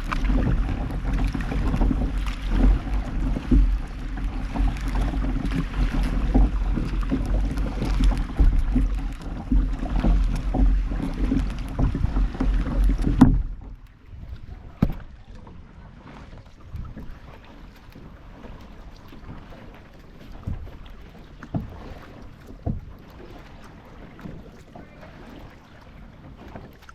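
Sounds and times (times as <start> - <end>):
wind rumbling on microphone: 0.0 - 19.7
paddle splashes: 0.0 - 26.9
knocks on boat hull: 4.7 - 13.8, 14.8 - 15.1.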